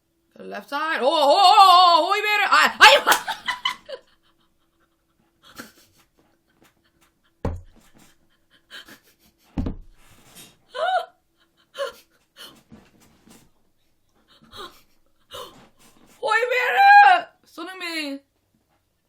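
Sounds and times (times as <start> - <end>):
low thump: 7.4 - 7.8, 9.6 - 10.0
woman breathing: 14.2 - 16.2.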